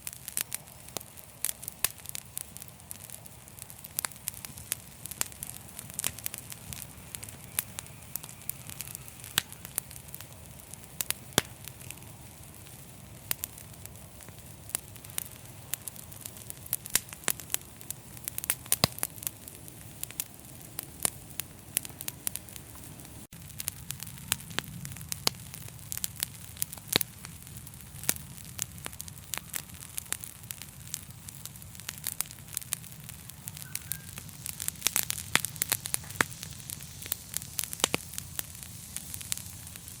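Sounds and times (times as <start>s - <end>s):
fireplace fire crackling: 0.0s - 40.0s
low rumble of flame: 0.0s - 40.0s
sharp pops and snaps: 18.3s - 40.0s.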